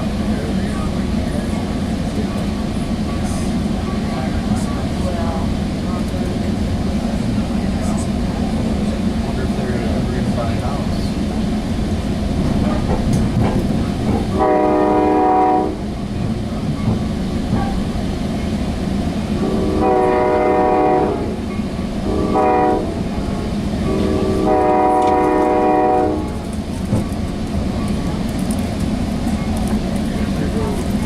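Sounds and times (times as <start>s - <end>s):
rail car rumbling: 0.0s - 31.0s
train horn: 14.3s - 15.9s, 19.4s - 26.5s.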